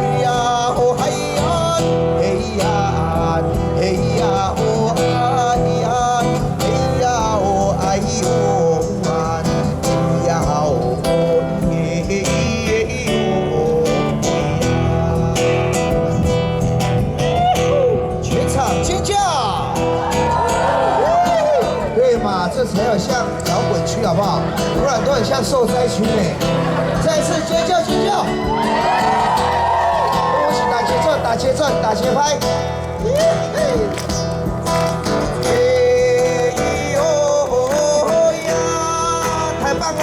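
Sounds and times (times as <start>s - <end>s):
acoustic guitar strumming: 0.0s - 40.0s
people singing: 35.2s - 40.0s.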